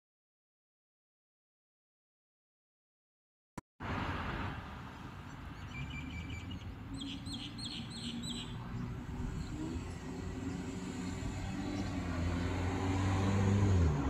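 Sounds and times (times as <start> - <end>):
small birds chirping: 5.2 - 12.7
bird downward-sweeping calls: 5.6 - 12.0.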